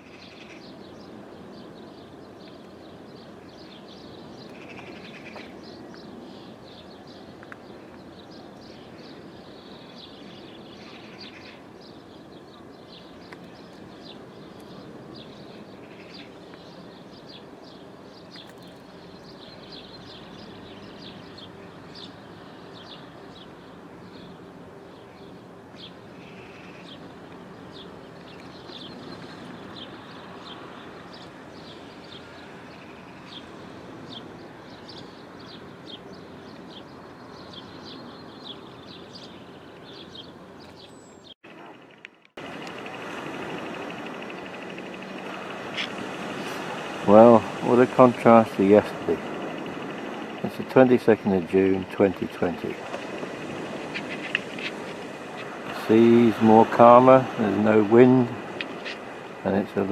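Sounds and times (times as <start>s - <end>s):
birds chirping: 0.0s - 59.9s
steady background hiss: 41.5s - 59.9s.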